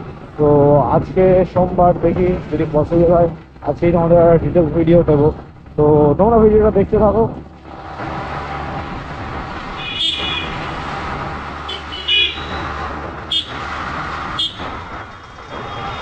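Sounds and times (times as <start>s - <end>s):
motorcycle engine: 0.0s - 16.0s
vehicle horn beeps: 9.8s - 10.6s, 11.7s - 12.6s.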